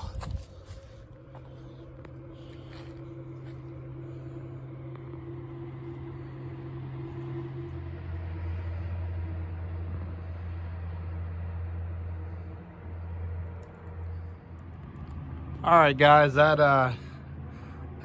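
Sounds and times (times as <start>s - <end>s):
vehicle engine hum: 0.0s - 18.0s.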